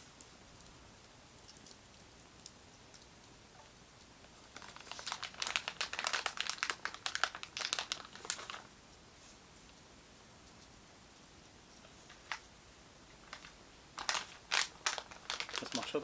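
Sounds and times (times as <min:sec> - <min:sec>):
plastic packaging crinkling: 0:04.5 - 0:08.7, 0:13.2 - 0:16.0.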